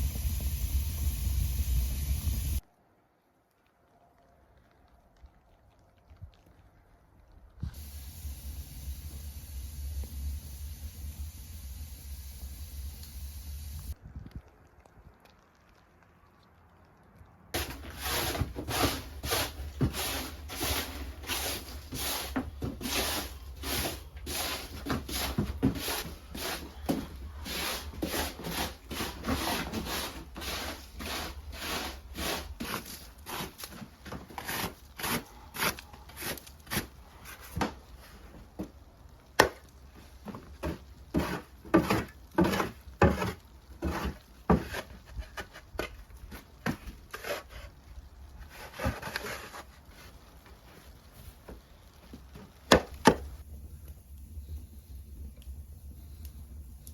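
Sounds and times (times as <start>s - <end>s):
hand tool scraping wood: 17.6s - 37.7s, 40.3s - 47.8s, 48.4s - 50.1s.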